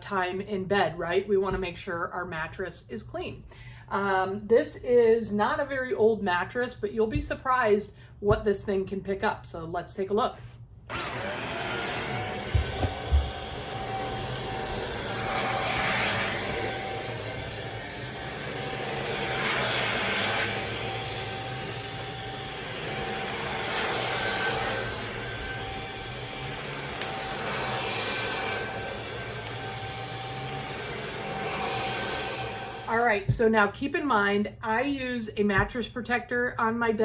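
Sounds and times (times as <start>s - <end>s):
vacuum cleaner running with whine: 10.9s - 33.2s.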